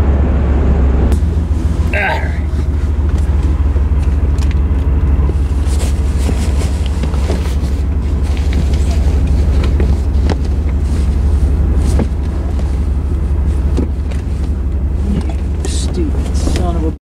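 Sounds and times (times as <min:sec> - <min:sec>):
van road and engine rumble: 0:00.0 - 0:17.0.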